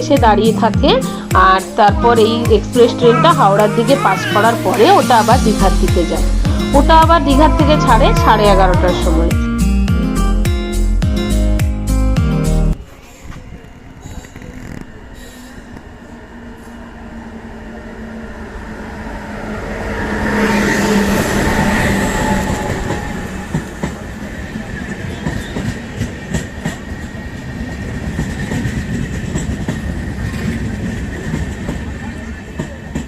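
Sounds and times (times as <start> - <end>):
train rumble: 12.7 - 33.0.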